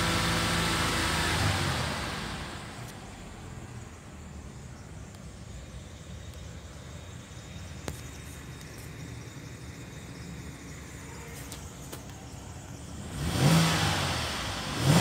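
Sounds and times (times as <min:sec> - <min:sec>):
engine revving: 0:00.0 - 0:02.9, 0:12.8 - 0:15.0
car engine idling: 0:00.0 - 0:15.0.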